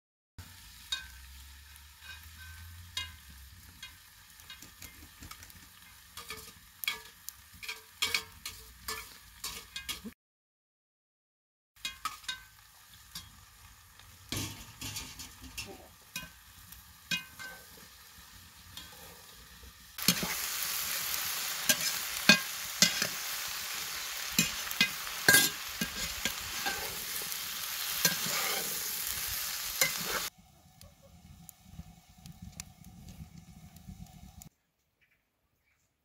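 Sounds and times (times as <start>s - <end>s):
onions sizzling in hot oil: 0.4s - 10.1s, 11.8s - 34.5s
wood fire crackling: 0.4s - 10.1s, 11.9s - 34.5s
metal spoon stirring against pot: 2.0s - 10.1s, 11.8s - 13.5s, 14.3s - 16.5s, 17.1s - 18.0s, 18.6s - 29.0s, 29.8s - 30.3s.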